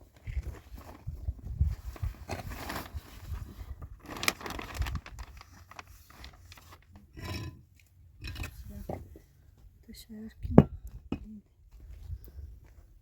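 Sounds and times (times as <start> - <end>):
irregular scraping and rustling: 0.1 - 9.3.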